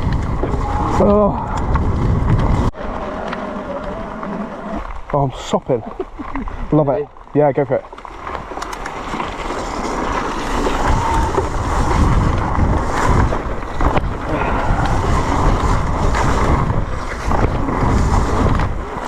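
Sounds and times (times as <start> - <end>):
wind buffeting microphone: 0.0 - 4.2, 9.3 - 19.0
bike rattling on rough ground: 0.0 - 19.0
bike tyre noise: 0.0 - 19.0.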